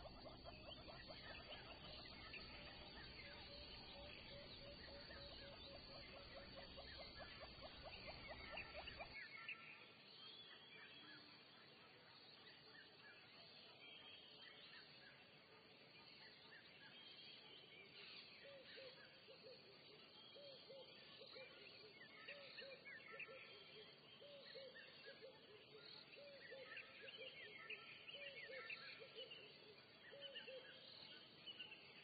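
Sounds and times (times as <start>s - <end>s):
low hooting bird calls: 0.0s - 9.2s
birds chirping and twittering: 0.0s - 32.0s.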